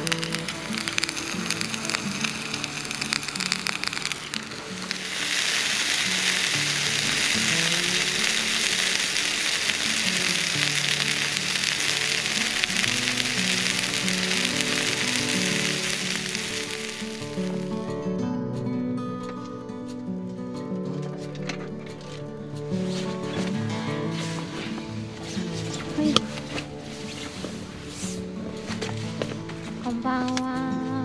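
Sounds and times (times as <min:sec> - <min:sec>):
food sizzling in a pan: 0:00.0 - 0:17.8
food crackling in a pan: 0:00.0 - 0:17.9
background music with simple melody: 0:00.0 - 0:31.0.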